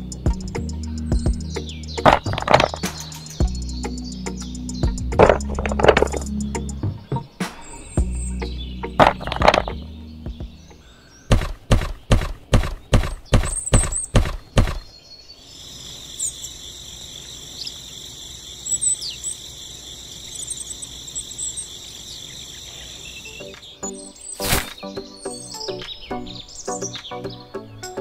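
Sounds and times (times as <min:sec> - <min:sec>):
bird chirps: 0:00.0 - 0:28.0
insects chirping: 0:00.0 - 0:28.0
wooden sticks knocking: 0:02.0 - 0:03.0, 0:05.2 - 0:06.3, 0:09.0 - 0:09.8.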